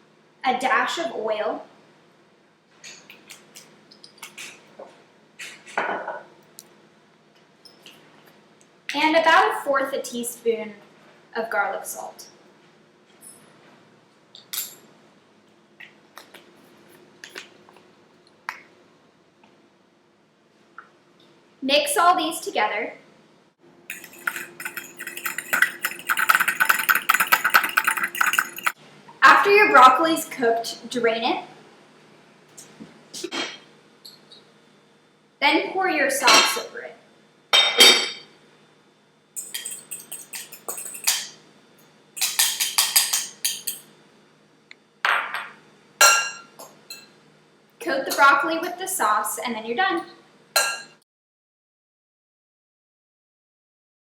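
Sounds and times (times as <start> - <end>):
measuring spoon and containers clicking: 23.9 - 28.8, 39.4 - 41.3, 42.2 - 43.8.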